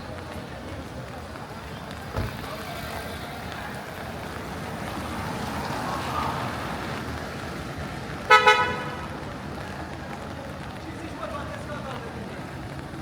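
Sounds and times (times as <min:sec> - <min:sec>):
tyres on wet street: 0:00.0 - 0:13.0
rain hiss: 0:02.2 - 0:08.1.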